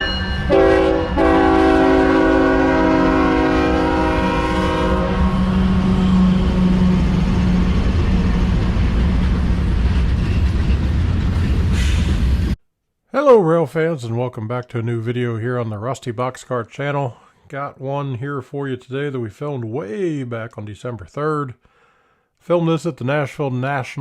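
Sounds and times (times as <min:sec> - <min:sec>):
locomotive air horn: 0:00.0 - 0:07.8
locomotive engines rumbling: 0:00.0 - 0:12.6.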